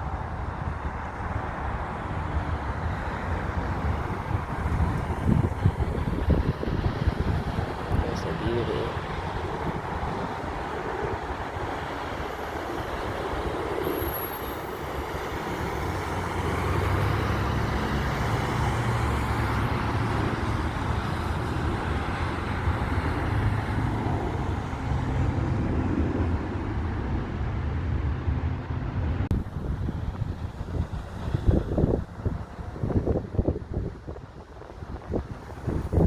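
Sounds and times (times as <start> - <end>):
jet engines rumbling: 0.0 - 36.0.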